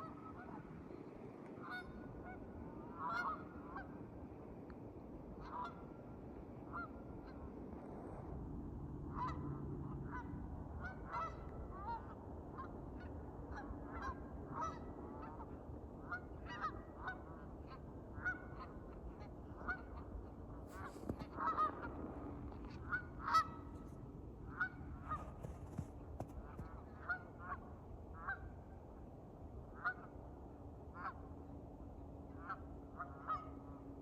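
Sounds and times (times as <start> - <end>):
steady low hum: 0.0 - 34.0
geese honking: 1.6 - 3.9, 10.0 - 20.1, 20.7 - 28.4, 32.4 - 33.7.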